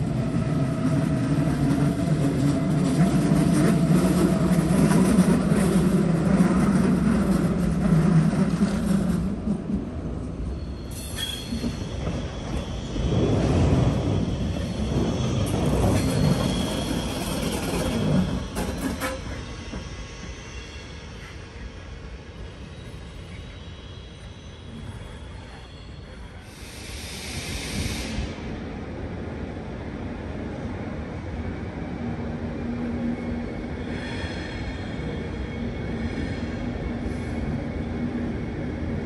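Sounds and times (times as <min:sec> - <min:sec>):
electric train rumbling past: 0:00.0 - 0:39.0
high wheel squeal: 0:10.5 - 0:21.8.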